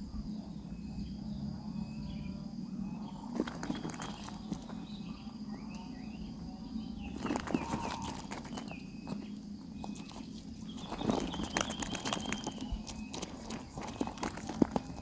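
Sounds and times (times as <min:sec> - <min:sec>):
thin bird chirps: 0:00.8 - 0:15.0
nestlings scrabbling and rustling: 0:03.2 - 0:05.3, 0:07.0 - 0:15.0.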